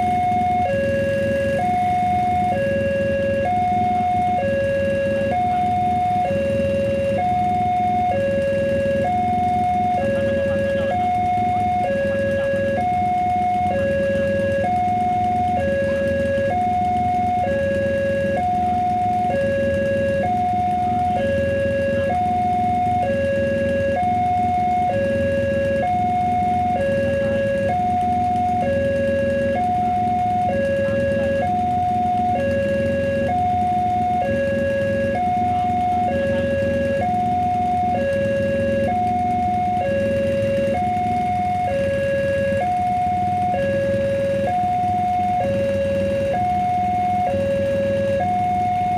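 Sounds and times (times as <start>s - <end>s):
level crossing two-tone alarm: 0.0s - 48.9s.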